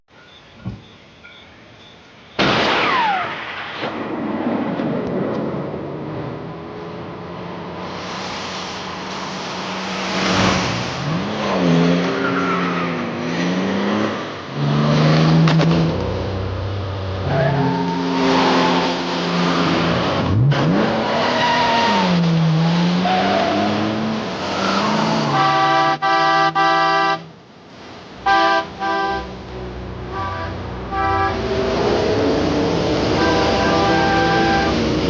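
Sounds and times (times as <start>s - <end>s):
car engines revving: 4.6s - 35.0s
car horns honking: 17.2s - 19.4s, 24.8s - 27.4s, 28.2s - 32.0s, 33.0s - 35.0s.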